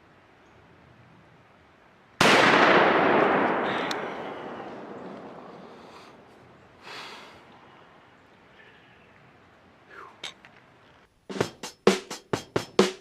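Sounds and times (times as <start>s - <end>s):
rifle shot with echo: 2.2s - 6.3s.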